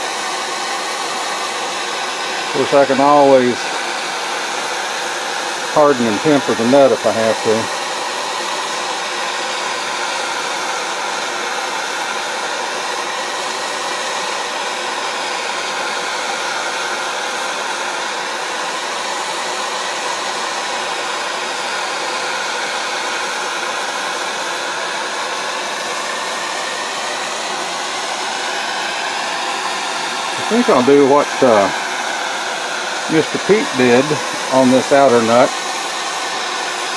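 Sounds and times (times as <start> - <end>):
heat gun blowing: 0.0 - 36.9.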